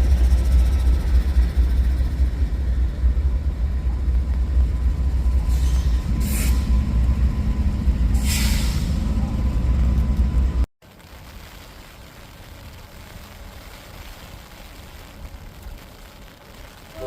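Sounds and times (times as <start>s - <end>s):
diesel locomotive rumbling: 0.0s - 10.7s
air brakes hissing: 5.4s - 6.9s, 8.1s - 9.2s.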